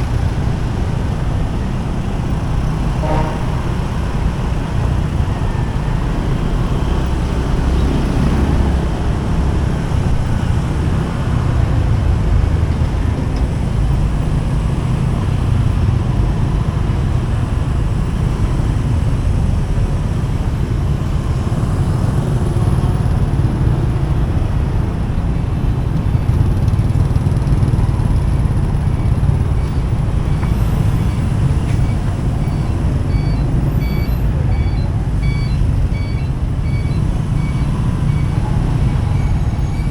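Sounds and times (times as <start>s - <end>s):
motorcycle engine rumble: 0.0s - 39.9s
passing vehicles: 0.0s - 39.9s
reversing beeper: 29.0s - 39.9s.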